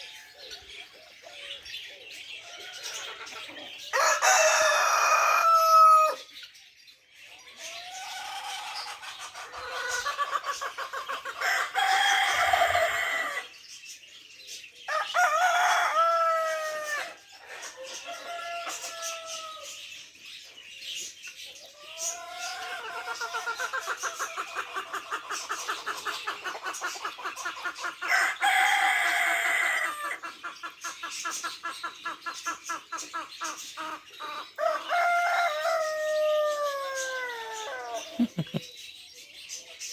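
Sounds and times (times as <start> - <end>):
chickens clucking rapidly: 2.4 - 6.1, 7.5 - 13.5, 21.0 - 38.9
roosters crowing: 2.4 - 6.3, 7.6 - 13.6, 14.9 - 19.9, 21.8 - 30.3, 34.2 - 38.6.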